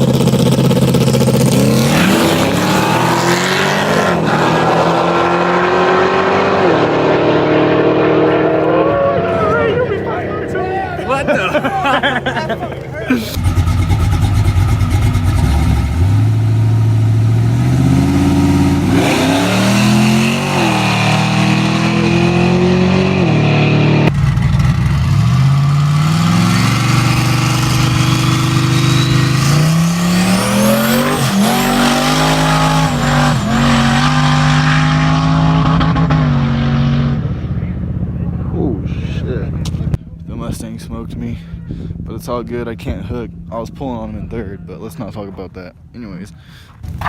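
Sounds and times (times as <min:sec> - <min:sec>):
car engine revving through gears: 0:00.0 - 0:10.4, 0:13.4 - 0:37.5
high turbo whine: 0:00.0 - 0:11.8, 0:13.3 - 0:41.0.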